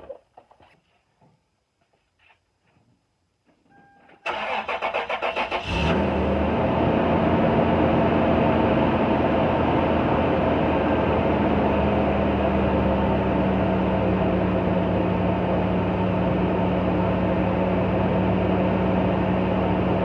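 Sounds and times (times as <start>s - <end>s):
car engine idling: 5.4s - 20.0s.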